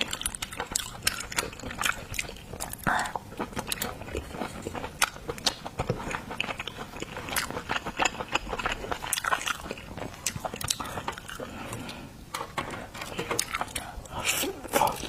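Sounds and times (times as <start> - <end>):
chewing and biting: 0.0 - 12.0.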